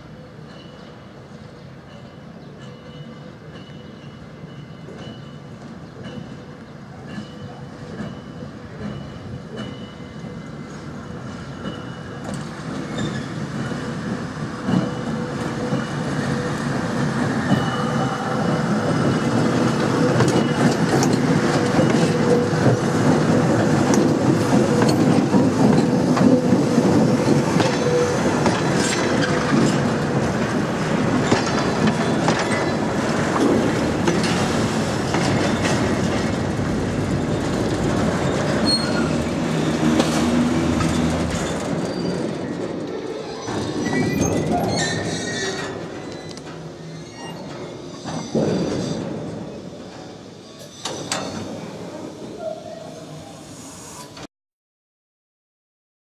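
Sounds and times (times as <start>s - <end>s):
diesel locomotive engine: 0.0s - 54.3s
wheels squealing: 35.2s - 51.7s.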